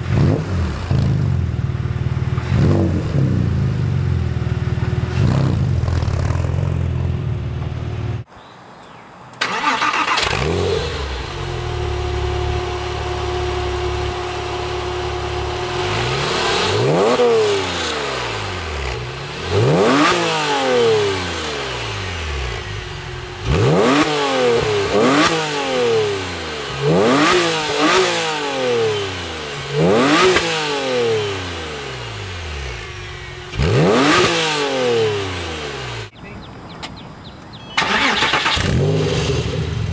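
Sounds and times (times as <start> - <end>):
engine revving: 0.0 - 8.2, 9.4 - 36.1, 37.8 - 39.9
car engine idling: 9.5 - 19.7, 21.1 - 27.0, 31.3 - 36.4.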